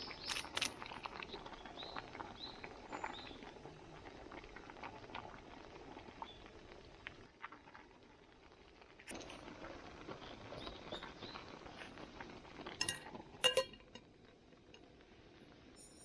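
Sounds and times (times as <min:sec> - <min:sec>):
faint crackling hiss: 0:00.0 - 0:16.0
metal cookware clinking: 0:12.8 - 0:14.1.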